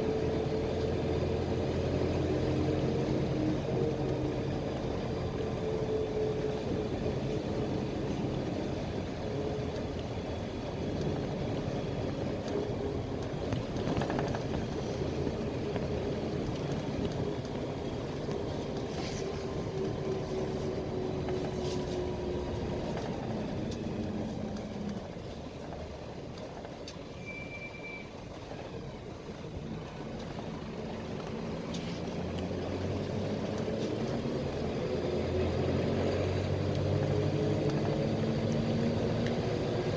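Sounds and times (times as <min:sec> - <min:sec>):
bus diesel engine: 0:00.0 - 0:39.9
short high beep: 0:27.2 - 0:28.1.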